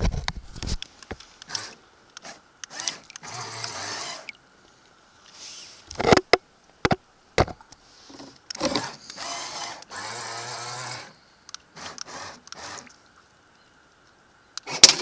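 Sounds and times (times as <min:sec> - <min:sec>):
small electric motor whirring: 0:00.0 - 0:04.3, 0:08.6 - 0:13.0
sharp clicks and knocks: 0:05.9 - 0:07.7.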